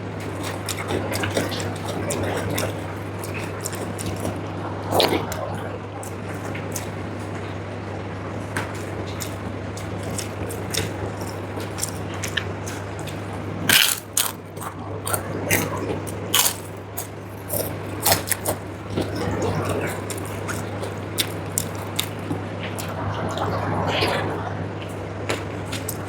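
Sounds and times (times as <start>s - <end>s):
steady low hum: 0.0s - 26.0s
chewing: 0.1s - 7.5s, 8.8s - 26.0s
sharp crunches: 10.0s - 22.4s.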